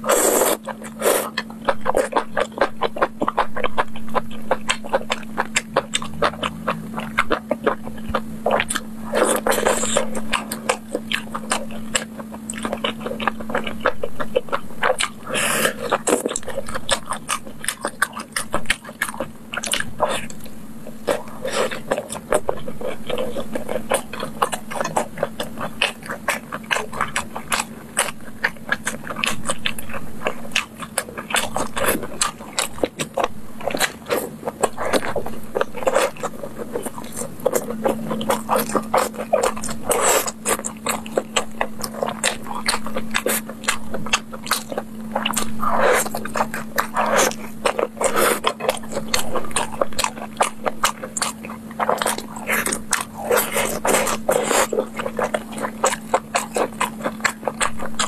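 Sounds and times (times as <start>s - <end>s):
biting and chewing with mouth smacks: 0.0s - 58.0s.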